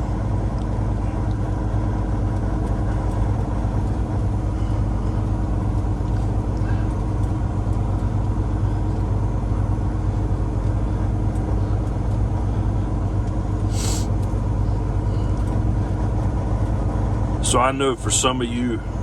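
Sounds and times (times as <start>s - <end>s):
diesel truck engine running: 0.0s - 19.0s
air brake hiss: 13.7s - 14.1s.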